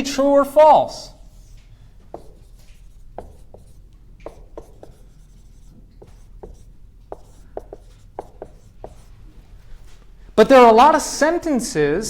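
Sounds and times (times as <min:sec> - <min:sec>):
writing on a board: 0:01.3 - 0:09.2.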